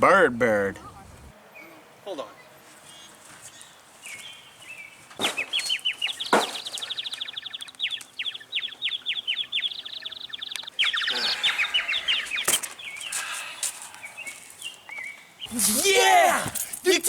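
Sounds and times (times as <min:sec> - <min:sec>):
bird squawking: 0:00.8 - 0:15.7
sharp knocks: 0:05.1 - 0:06.9.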